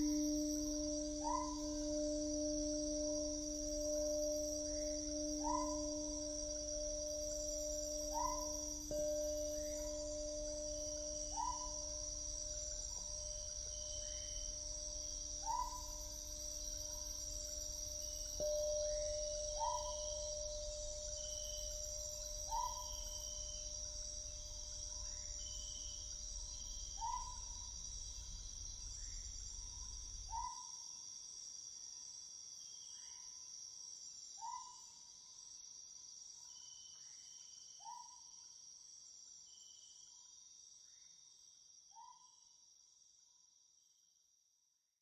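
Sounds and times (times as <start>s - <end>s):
low hum: 0.0s - 15.2s
insect chorus: 0.0s - 44.0s
faint steady tone: 0.0s - 44.6s.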